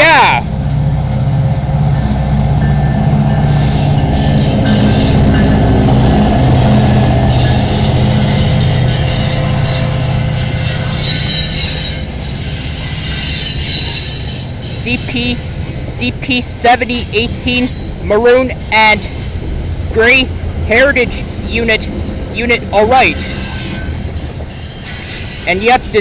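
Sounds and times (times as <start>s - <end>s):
diesel locomotive engine humming: 0.0s - 26.0s
rushing train wheel noise: 0.0s - 26.0s
high wheel squeal: 2.6s - 26.0s.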